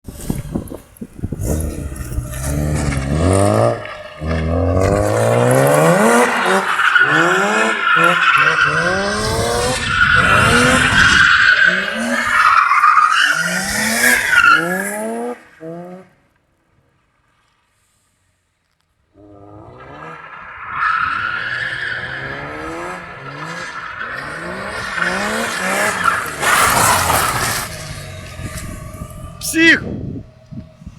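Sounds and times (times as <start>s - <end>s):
car engine revving hard: 1.3s - 12.3s, 22.0s - 29.4s.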